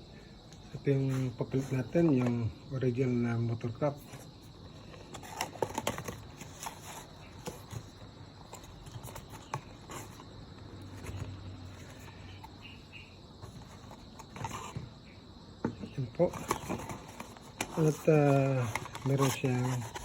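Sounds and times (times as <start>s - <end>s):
clicks and taps of packaging handled: 4.9s - 12.6s, 13.4s - 14.9s, 15.6s - 20.0s.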